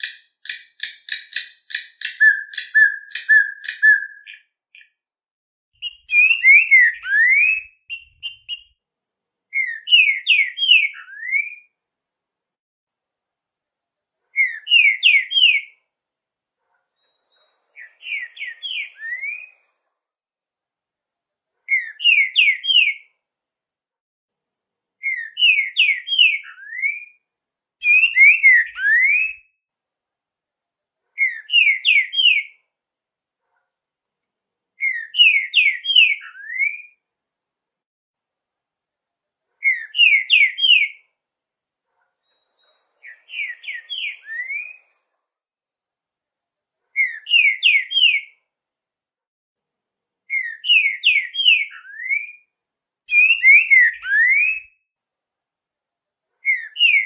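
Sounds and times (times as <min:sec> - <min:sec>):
songbird whistling: 0:00.0 - 0:04.9, 0:05.8 - 0:08.8, 0:09.5 - 0:11.7, 0:14.4 - 0:15.8, 0:17.8 - 0:19.6, 0:21.7 - 0:23.1, 0:25.0 - 0:27.2, 0:27.8 - 0:29.5, 0:31.2 - 0:32.6, 0:34.8 - 0:37.0, 0:39.6 - 0:41.0, 0:43.0 - 0:44.9, 0:47.0 - 0:48.3, 0:50.3 - 0:52.5, 0:53.1 - 0:54.8, 0:56.4 - 0:57.0.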